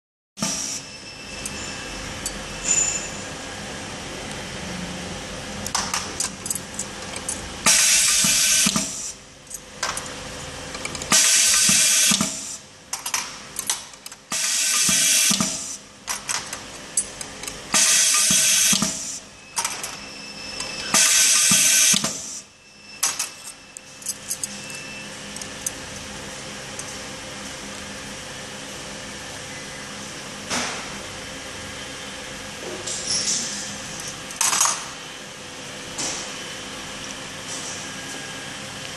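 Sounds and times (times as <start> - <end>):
machine hissing: 7.6 - 9.2, 11.1 - 12.7, 14.3 - 15.8, 17.7 - 19.3, 20.8 - 22.5.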